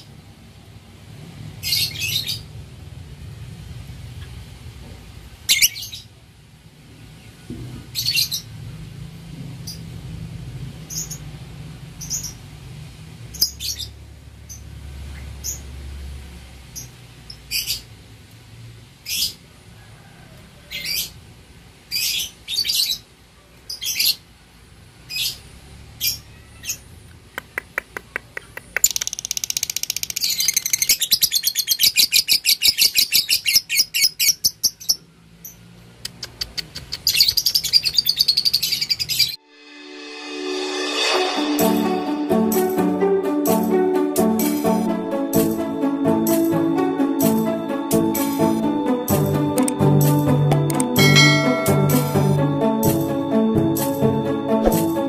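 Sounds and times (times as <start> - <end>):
lovebird rapid chattering trill: 28.6 - 31.4.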